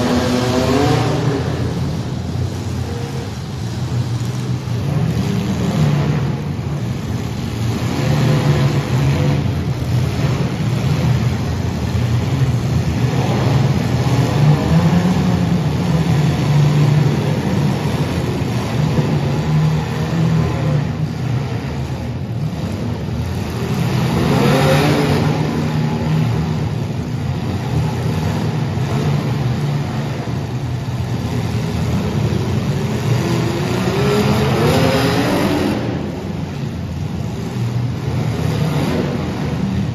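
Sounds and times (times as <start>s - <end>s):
car engines revving: 0.0s - 39.9s.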